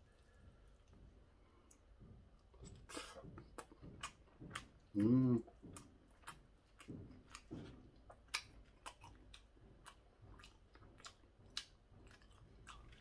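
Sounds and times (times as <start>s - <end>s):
crunchy chewing: 1.7s - 13.0s.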